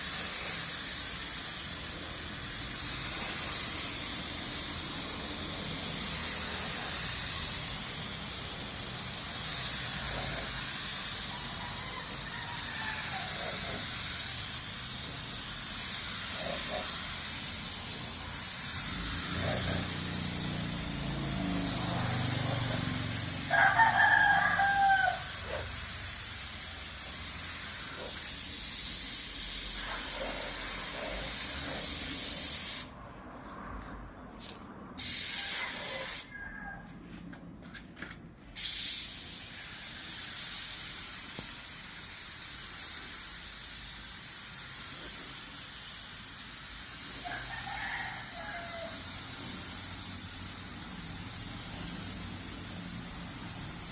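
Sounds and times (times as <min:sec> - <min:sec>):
paint spray gun hissing: 0:00.0 - 0:32.9, 0:35.0 - 0:36.3, 0:38.6 - 0:53.9
rooster crowing: 0:11.2 - 0:14.0, 0:20.9 - 0:25.7, 0:35.3 - 0:37.2, 0:47.2 - 0:49.8.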